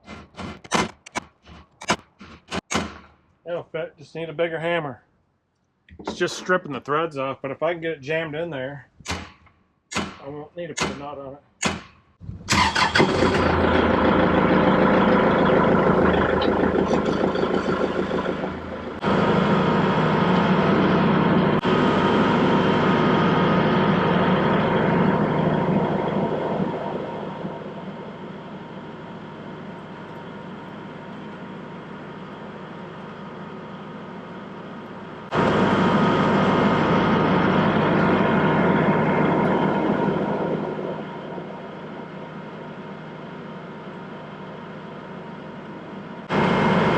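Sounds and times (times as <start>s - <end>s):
tractor engine running: 12.2s - 46.9s.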